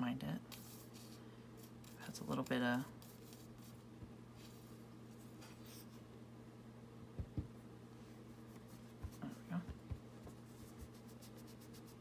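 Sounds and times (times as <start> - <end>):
soft low thumps: 7.0 - 7.6.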